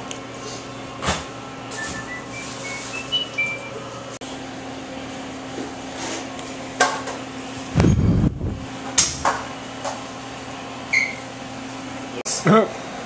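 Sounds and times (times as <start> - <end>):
high beep: 1.8 - 3.8
steady low hum: 7.4 - 9.6.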